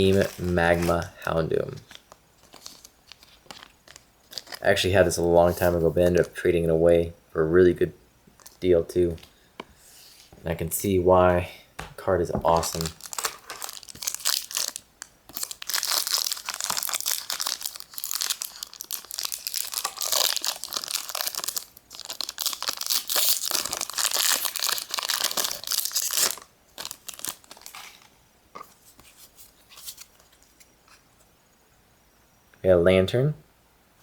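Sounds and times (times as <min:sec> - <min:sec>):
foil wrapper crinkling and tearing: 0:00.0 - 0:04.9, 0:12.5 - 0:28.1.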